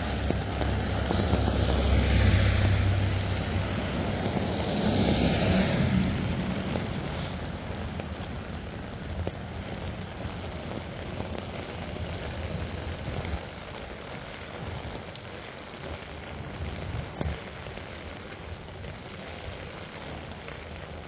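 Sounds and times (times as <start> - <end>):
low rumble of passing traffic: 0.0 - 14.0
rain falling on an umbrella: 0.0 - 21.0.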